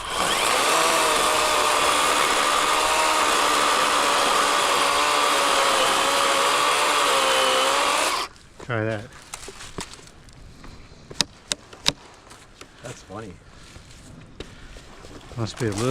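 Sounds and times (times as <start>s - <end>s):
electric chainsaw cutting log: 0.0s - 8.4s.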